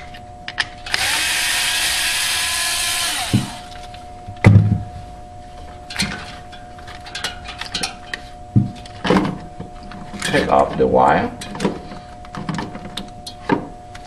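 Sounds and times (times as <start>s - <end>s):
power drill spinning: 0.9s - 3.8s.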